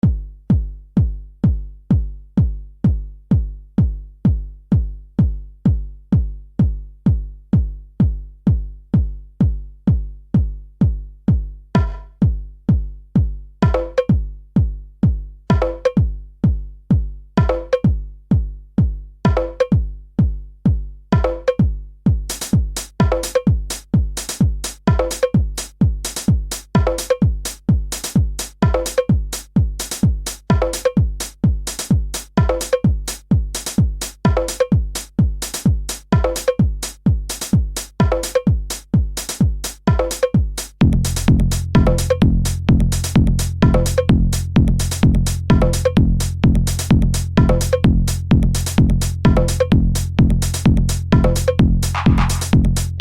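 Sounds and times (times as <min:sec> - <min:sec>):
drum machine kick: 0:00.0 - 0:53.0
bright hi-hat: 0:22.3 - 0:53.0
electronic music: 0:40.8 - 0:53.0.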